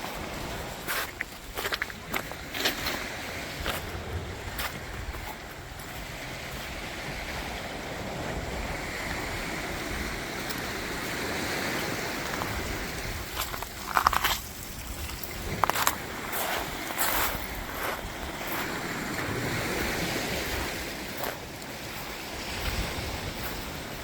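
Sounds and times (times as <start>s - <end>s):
surf washing on beach: 0.0s - 24.0s.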